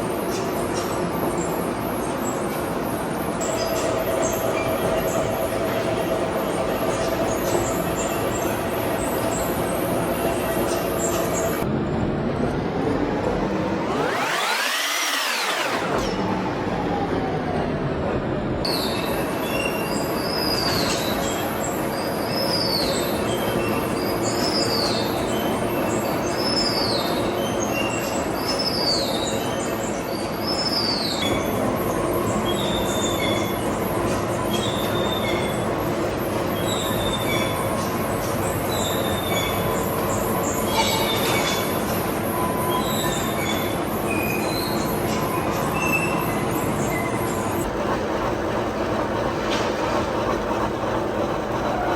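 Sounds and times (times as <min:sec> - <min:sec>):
steady machine noise: 0:00.0 - 0:51.9
tool squealing on metal: 0:38.6 - 0:47.6.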